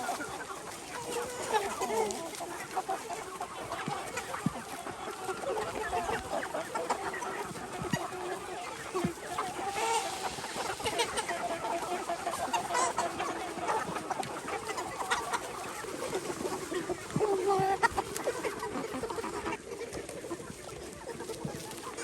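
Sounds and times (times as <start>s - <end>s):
hens clucking: 0.0s - 22.0s.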